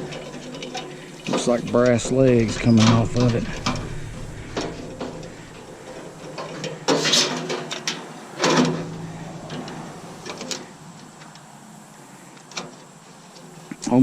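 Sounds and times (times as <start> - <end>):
metal scraping rasps: 0.0 - 10.8
metal parts clicking and clinking: 0.0 - 11.4.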